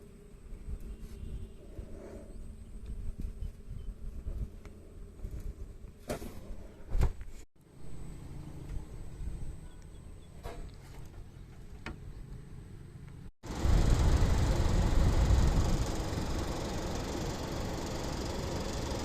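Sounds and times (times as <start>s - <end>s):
air conditioning unit rumbling: 10.6s - 19.0s.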